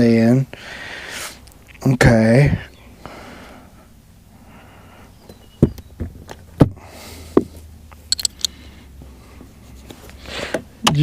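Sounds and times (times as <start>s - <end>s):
small high clicks: 7.9s - 8.6s
plastic parts clicking and knocking: 8.1s - 8.5s.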